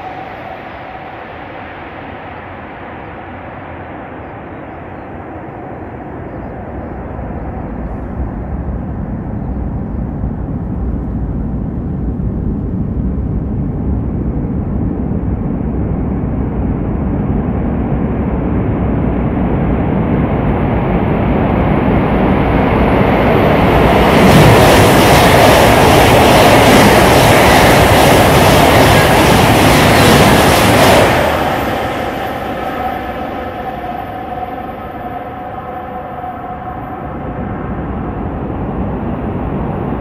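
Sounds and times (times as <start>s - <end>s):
train rushing rumble in tunnel: 0.0s - 40.0s.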